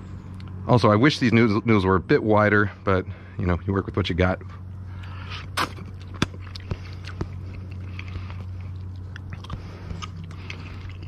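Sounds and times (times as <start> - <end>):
steady low hum: 0.0 - 11.0
person chewing noodles: 5.0 - 11.0.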